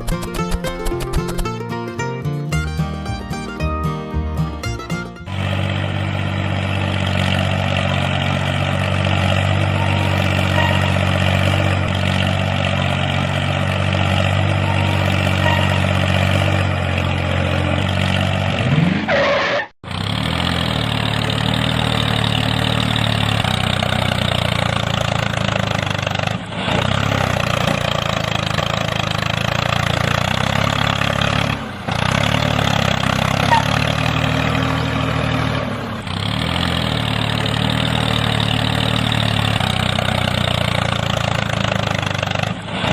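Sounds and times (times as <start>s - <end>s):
engine running steadily: 0.0s - 18.5s.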